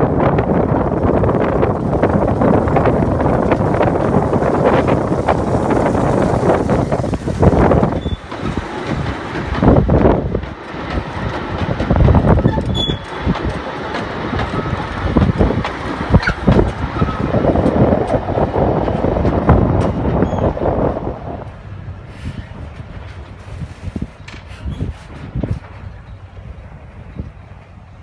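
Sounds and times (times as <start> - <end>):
train wheels rattling on rails: 0.0 - 28.0
faint wheel squeals: 12.4 - 13.2, 20.2 - 20.6, 23.4 - 26.3.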